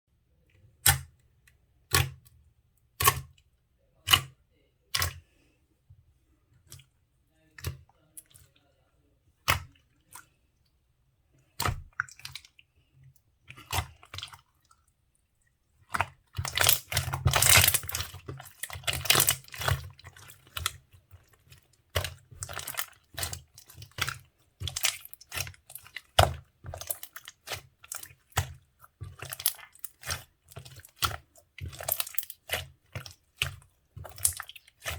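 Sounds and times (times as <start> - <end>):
slime squishing and popping: 15.9 - 34.9.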